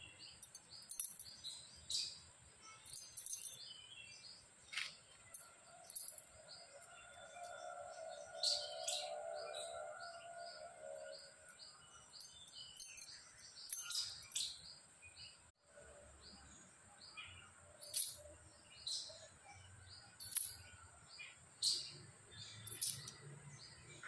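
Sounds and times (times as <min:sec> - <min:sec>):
birds chirping: 0:00.0 - 0:15.5, 0:16.1 - 0:24.0.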